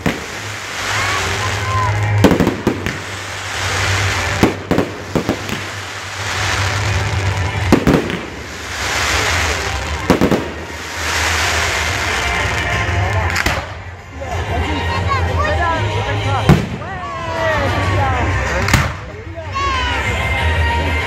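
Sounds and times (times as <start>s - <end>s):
hissing noise: 0.0s - 12.9s
fireworks bursting with bangs: 0.0s - 14.0s, 16.4s - 16.9s, 18.5s - 19.1s.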